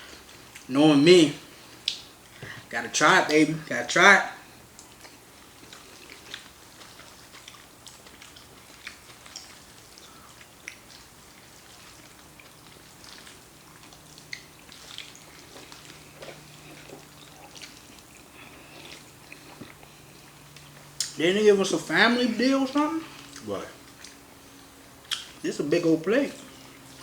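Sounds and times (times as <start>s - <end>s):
faint steady hum: 0.0s - 27.0s
wet chewing smacks: 1.5s - 2.6s, 4.6s - 21.2s, 21.9s - 25.4s.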